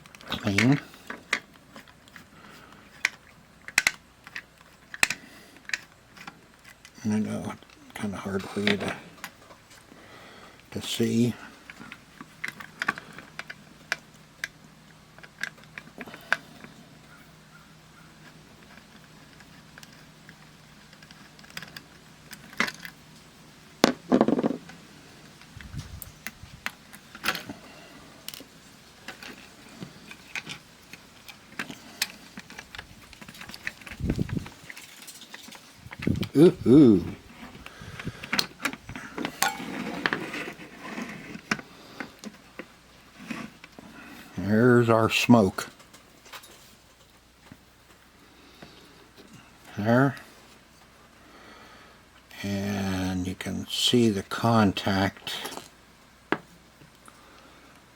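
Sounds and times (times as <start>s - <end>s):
small parts clicking and tapping: 0.0s - 7.0s, 11.6s - 16.8s, 18.2s - 23.0s, 28.2s - 36.4s
faint steady hum: 0.0s - 57.9s.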